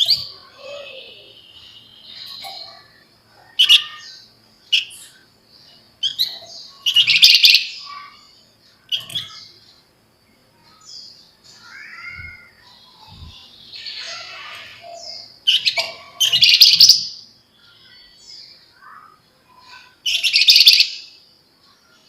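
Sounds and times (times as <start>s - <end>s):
bird chirping: 0.0s - 22.0s
bird chattering trill: 11.6s - 17.0s.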